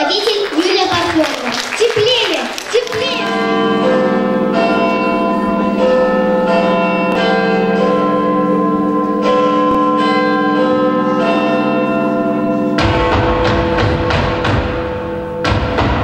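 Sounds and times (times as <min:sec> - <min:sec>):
bells ringing over sound system: 0:00.0 - 0:15.9
music with drums: 0:12.8 - 0:16.0.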